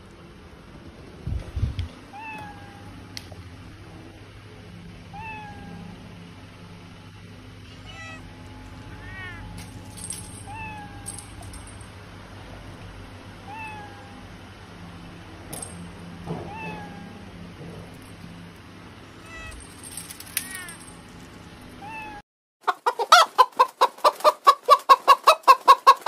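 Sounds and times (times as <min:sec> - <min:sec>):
low steady hum: 0:00.0 - 0:22.2
kitten mewing: 0:05.1 - 0:06.0, 0:07.6 - 0:09.6, 0:10.4 - 0:11.2, 0:13.4 - 0:14.2, 0:16.4 - 0:17.3.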